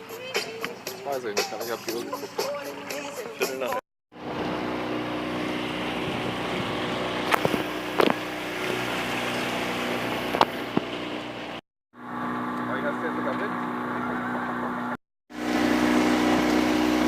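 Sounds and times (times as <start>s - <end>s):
boat motor running: 4.1s - 17.0s.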